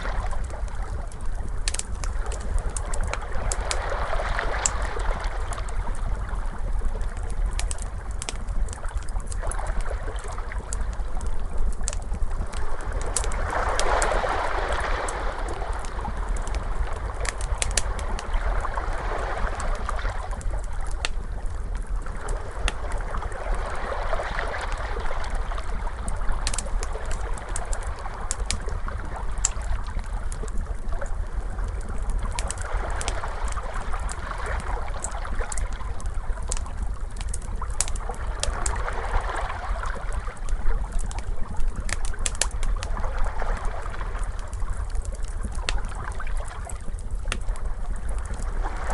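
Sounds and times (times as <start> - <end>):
crackling fire pops and snaps: 0.0 - 18.7, 19.6 - 23.8, 24.5 - 38.8, 39.6 - 48.9
steady low rumble: 0.0 - 48.9
ocean waves washing in: 3.2 - 6.2, 12.7 - 20.3.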